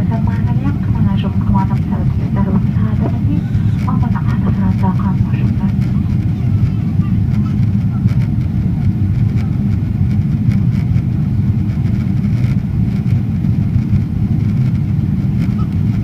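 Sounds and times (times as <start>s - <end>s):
airplane cabin engine roar: 0.0s - 16.0s.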